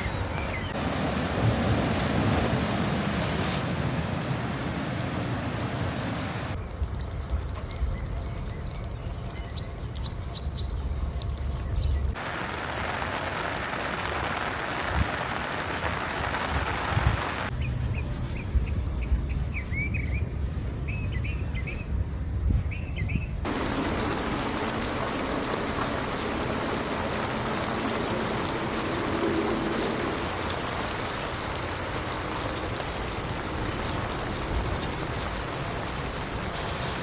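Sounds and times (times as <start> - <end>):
steady rain hiss: 0.0 - 6.6, 12.1 - 17.6, 23.4 - 37.0.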